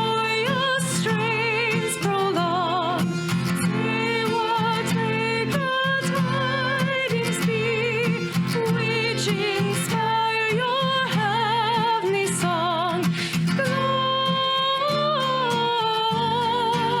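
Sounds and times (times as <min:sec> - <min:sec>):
guitar accompaniment: 0:00.0 - 0:17.0
person singing with vibrato: 0:00.0 - 0:17.0.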